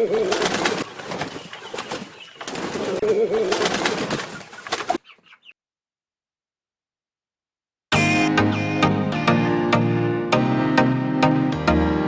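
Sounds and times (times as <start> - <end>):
bird warbling coo: 2.6 - 5.0.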